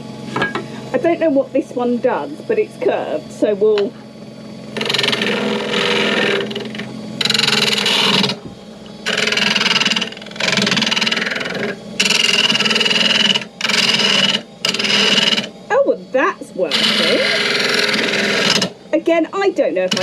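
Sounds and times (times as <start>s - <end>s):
lathe humming: 0.0s - 20.0s
turning tool cutting wood: 4.6s - 15.8s, 16.4s - 18.8s, 19.8s - 20.0s.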